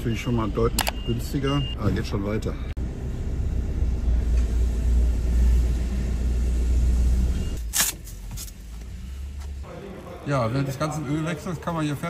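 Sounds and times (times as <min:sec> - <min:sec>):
low engine rumble: 0:00.0 - 0:10.2
sharp clicks: 0:00.8 - 0:01.0.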